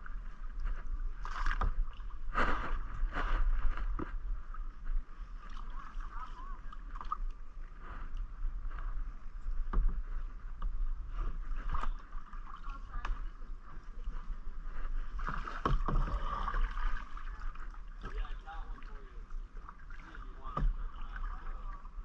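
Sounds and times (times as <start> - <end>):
paddle splashing in water: 0.1 - 22.0
paddle knocks: 15.2 - 17.1, 20.3 - 21.8.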